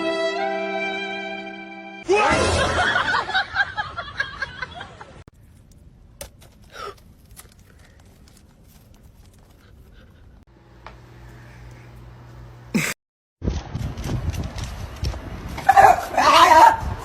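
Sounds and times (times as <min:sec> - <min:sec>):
person laughing loudly: 0:02.3 - 0:05.1.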